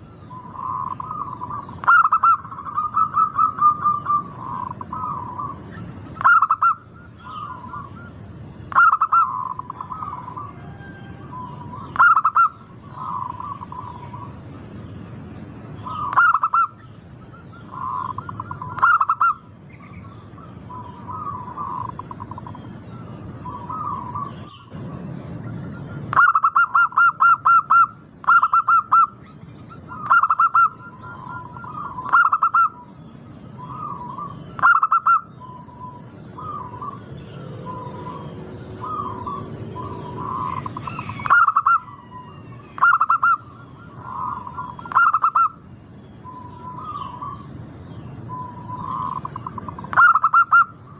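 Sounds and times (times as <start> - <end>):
dove cooing: 0.0 - 14.4, 15.8 - 24.8, 25.4 - 32.9, 33.5 - 47.5, 48.3 - 50.9.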